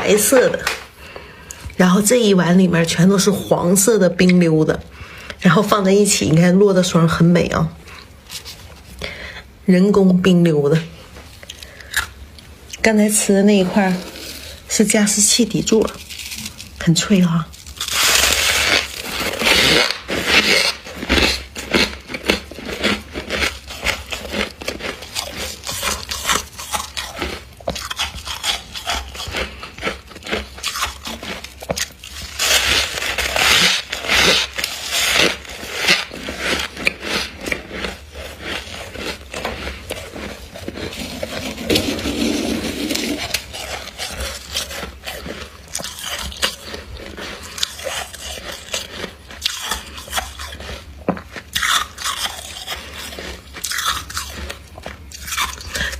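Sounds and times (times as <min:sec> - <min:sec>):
grainy scraping: 0:13.2 - 0:16.8, 0:32.2 - 0:50.0
frost chunks crunching: 0:15.2 - 0:55.9.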